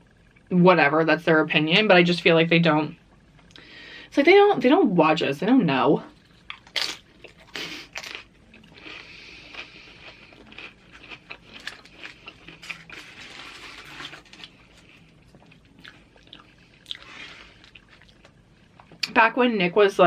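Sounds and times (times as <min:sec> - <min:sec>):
crunchy chewing of chips: 0:06.1 - 0:19.1.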